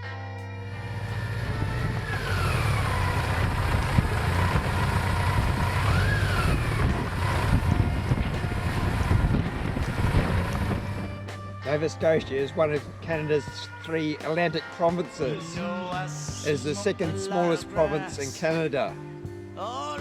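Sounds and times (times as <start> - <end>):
motorcycle engine running: 0.6 - 11.6
wind noise on microphone: 0.8 - 14.1.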